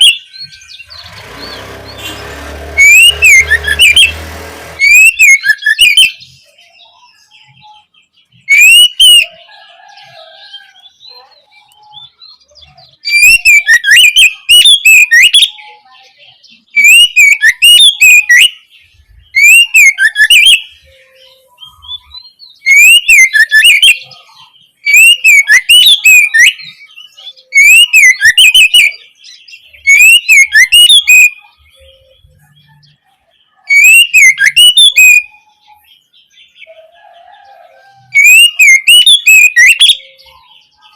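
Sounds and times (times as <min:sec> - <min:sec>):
faint bird calls: 0:00.0 - 0:40.9
songbird whistled phrases: 0:02.8 - 0:04.1, 0:04.8 - 0:09.4, 0:10.6 - 0:15.9, 0:16.5 - 0:18.7, 0:19.4 - 0:33.0, 0:33.6 - 0:36.0, 0:38.0 - 0:40.9.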